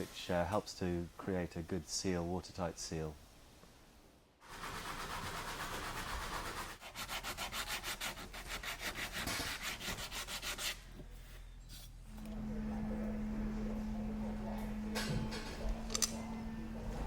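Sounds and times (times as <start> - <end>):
wood being sanded by hand: 4.4 - 10.9.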